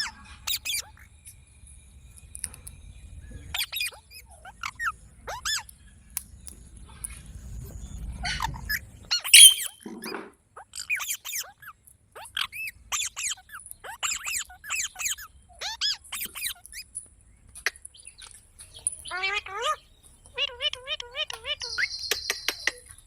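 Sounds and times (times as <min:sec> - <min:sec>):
parrot chirping and squawking: 0:00.0 - 0:01.2, 0:03.4 - 0:05.7, 0:08.0 - 0:16.9, 0:18.8 - 0:22.9.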